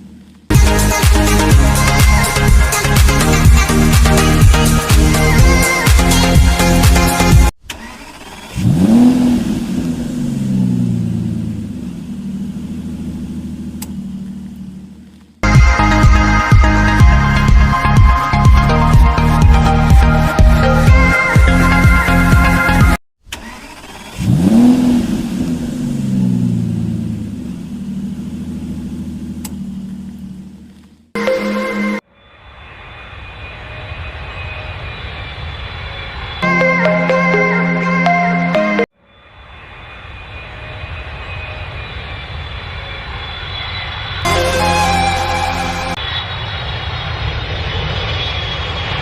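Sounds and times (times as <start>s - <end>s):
vehicle engine revving: 0.0s - 15.4s, 23.4s - 31.1s.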